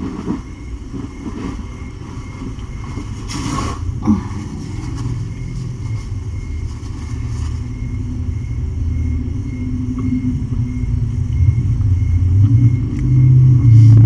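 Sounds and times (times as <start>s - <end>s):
cat purring: 0.0s - 7.7s.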